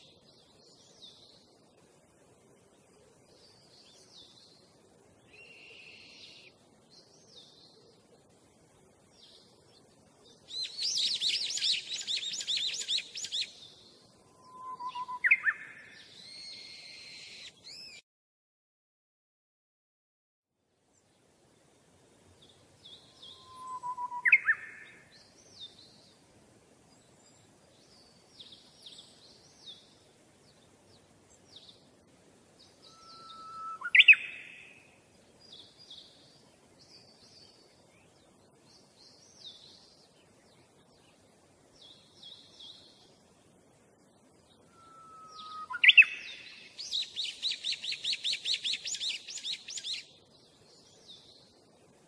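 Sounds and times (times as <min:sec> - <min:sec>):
birds chirping: 0:03.2 - 0:18.0, 0:32.5 - 0:43.0, 0:44.3 - 0:51.6.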